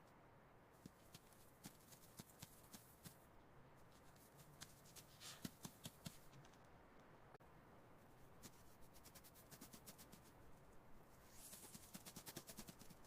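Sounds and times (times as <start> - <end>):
soft rustle: 0.7 - 6.8, 8.0 - 13.0.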